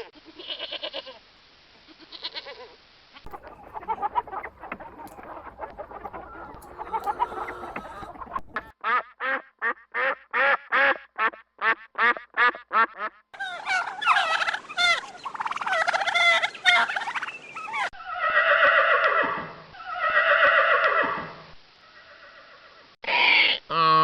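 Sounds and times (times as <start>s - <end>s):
poultry calling: 2.0s - 21.1s.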